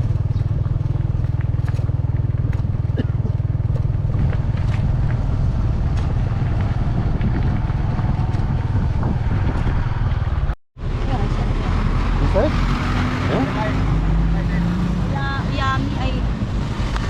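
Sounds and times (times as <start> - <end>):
wind buffeting microphone: 0.0 - 10.6
motorcycle engine rumble: 0.0 - 11.8.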